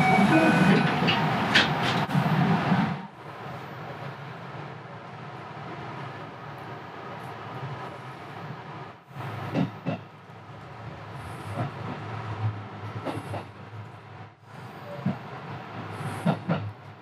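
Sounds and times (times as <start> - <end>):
wheels clacking over rail joints: 0.0 - 2.2
train running noise: 0.0 - 17.0.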